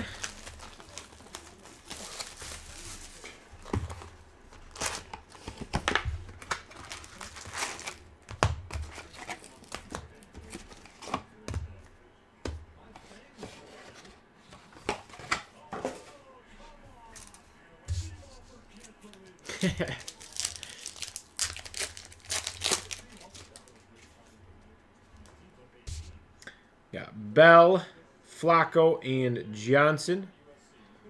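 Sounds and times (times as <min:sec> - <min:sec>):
packaging being torn open: 0:05.8 - 0:08.0, 0:19.8 - 0:23.8.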